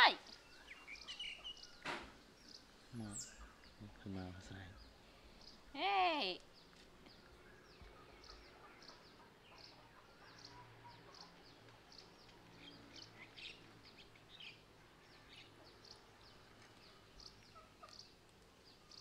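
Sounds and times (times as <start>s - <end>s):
small birds chirping rapidly: 0.0s - 19.0s.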